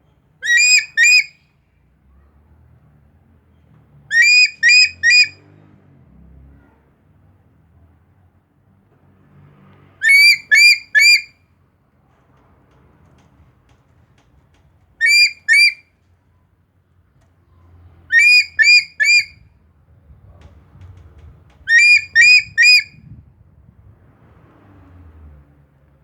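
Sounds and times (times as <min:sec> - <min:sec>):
bird calling shrill notes: 0:00.4 - 0:01.3, 0:04.1 - 0:05.4, 0:10.0 - 0:11.3, 0:15.0 - 0:15.8, 0:18.1 - 0:19.4, 0:21.7 - 0:22.9.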